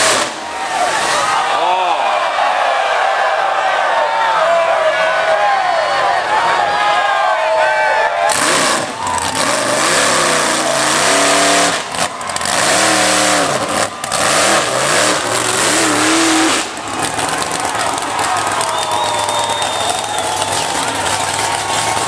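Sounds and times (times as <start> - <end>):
truck engine revving hard: 0.0 - 1.4, 8.2 - 22.0.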